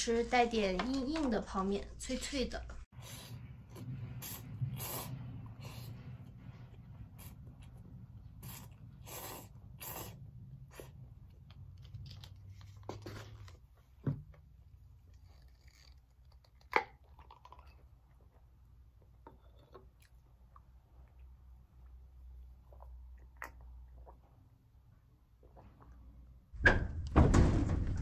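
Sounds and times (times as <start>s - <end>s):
person chewing crunchy noodles: 7.2s - 11.9s.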